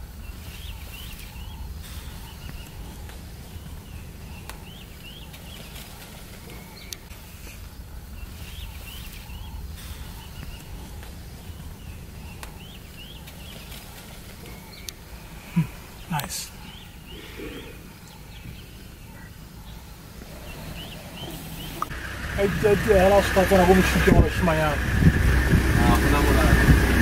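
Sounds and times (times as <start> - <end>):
bird singing chirps: 0.0 - 24.8
low steady rumble: 0.0 - 27.0.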